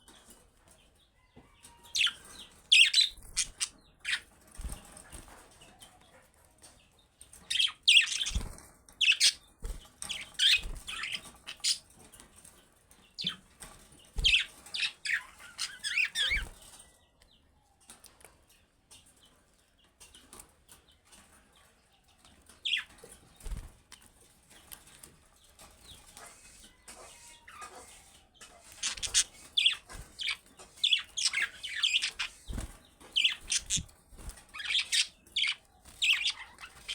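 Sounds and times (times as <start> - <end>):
budgerigars chirping and chattering: 1.9 - 4.9, 7.3 - 11.9, 13.2 - 13.4, 14.1 - 16.8, 22.6 - 23.6, 25.8 - 36.9.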